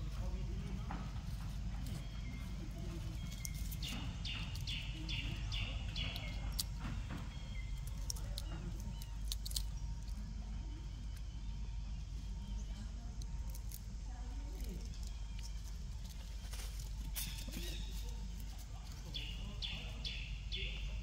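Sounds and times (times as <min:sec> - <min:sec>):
bird calling: 0:19.0 - 0:21.0.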